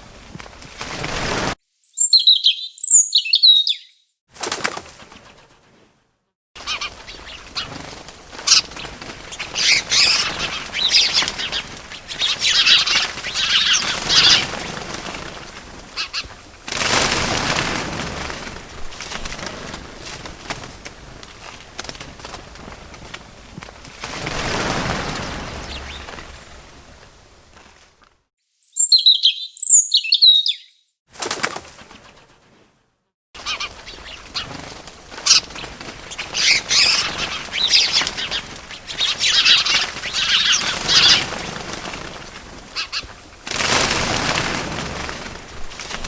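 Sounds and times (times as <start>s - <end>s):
wings flapping: 0.0s - 1.6s, 4.3s - 6.0s, 6.6s - 28.2s, 31.1s - 32.8s, 33.4s - 46.0s
small birds chirping: 1.7s - 4.1s, 6.6s - 16.5s, 25.0s - 26.6s, 28.5s - 30.9s, 33.4s - 43.3s.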